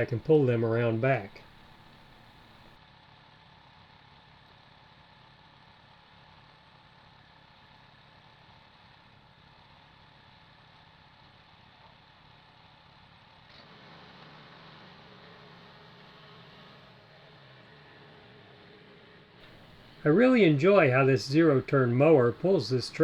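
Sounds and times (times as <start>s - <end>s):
small engine idling: 19.4s - 23.0s.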